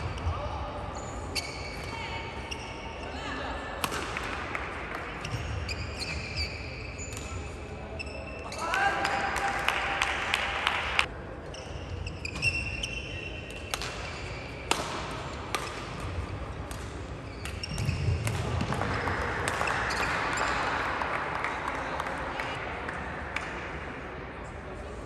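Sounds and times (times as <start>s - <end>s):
shoe squeaks on court: 1.0s - 3.0s, 5.2s - 8.6s, 11.5s - 14.6s, 17.2s - 18.2s
rackets striking shuttlecock: 3.8s - 5.4s, 13.5s - 18.8s.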